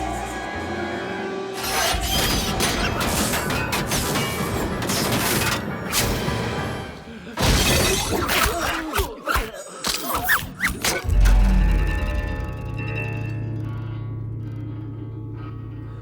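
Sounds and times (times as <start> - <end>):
film music: 0.0 - 7.4, 10.9 - 16.0
crashing shattering impacts: 1.8 - 8.4.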